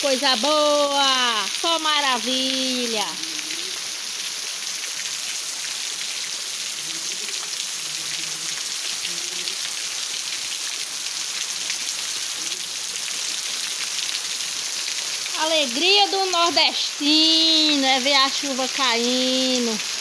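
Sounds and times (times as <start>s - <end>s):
rain on leaves and roof: 0.0s - 20.0s.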